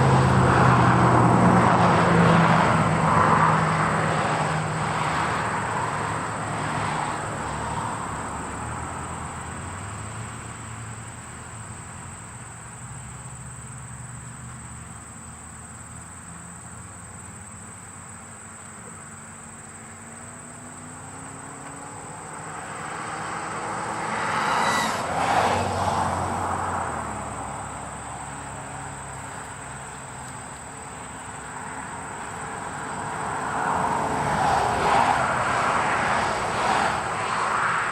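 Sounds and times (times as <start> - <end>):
steady high thin tone: 23.6 - 25.8.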